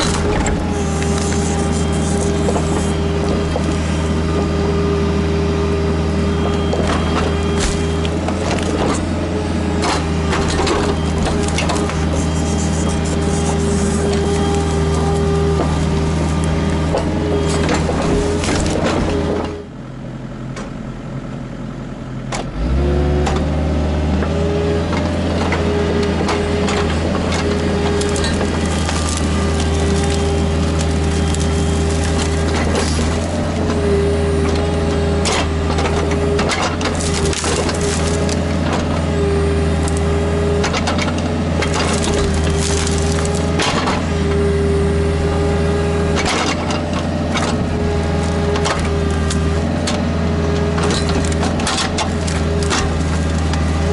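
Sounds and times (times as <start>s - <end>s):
excavator diesel engine: 0.0s - 53.9s
hydraulic whine: 0.0s - 53.9s
cracks and crunches: 9.8s - 19.6s, 25.4s - 44.1s, 46.1s - 53.9s.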